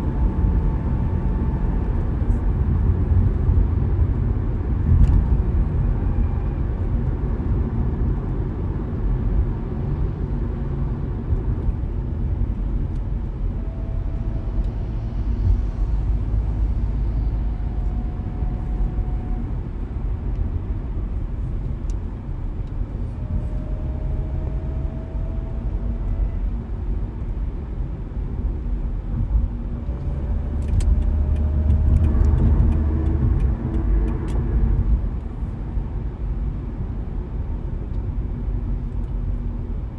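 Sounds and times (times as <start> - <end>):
car road and engine rumble: 0.0 - 39.9
light ticks: 30.6 - 35.3.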